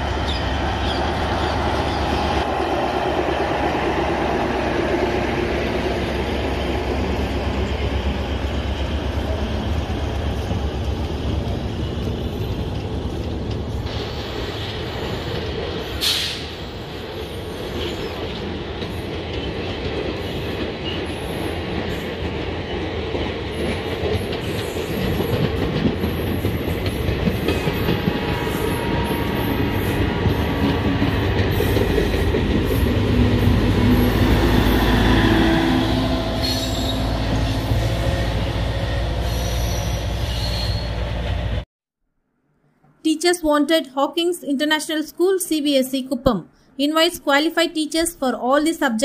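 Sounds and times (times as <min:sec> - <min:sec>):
train wheels rumbling on rails: 0:00.0 - 0:41.6.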